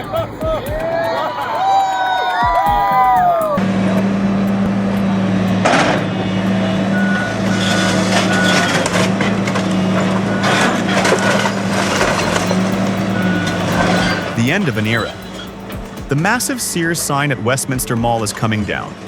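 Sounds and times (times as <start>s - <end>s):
reversing alarm beeping: 2.7s - 17.6s
heavy machinery engine running: 3.6s - 17.4s.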